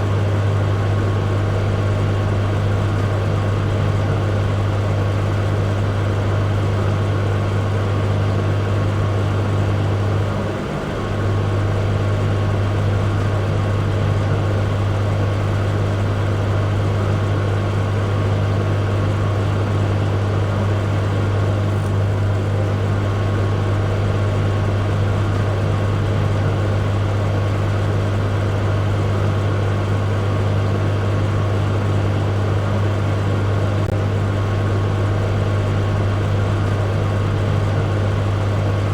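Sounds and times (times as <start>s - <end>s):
microwave oven running: 0.0s - 38.9s.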